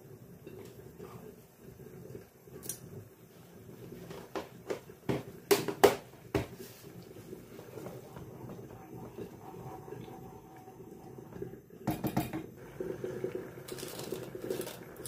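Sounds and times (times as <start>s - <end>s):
low steady hum: 6.6s - 15.0s
hard objects knocking and clattering: 11.9s - 12.5s.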